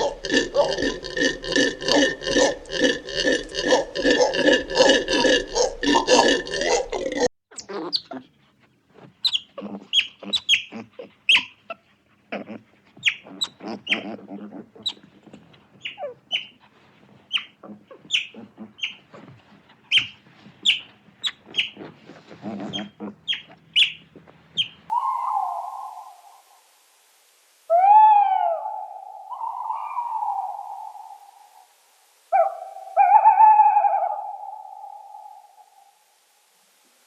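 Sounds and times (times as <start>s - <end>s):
steady tone with hiss: 24.1s - 37.0s.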